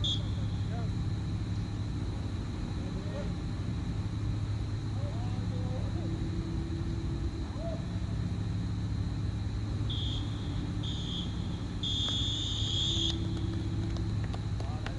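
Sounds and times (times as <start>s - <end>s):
referee's whistle blasts: 0.0s - 0.4s, 9.9s - 13.2s.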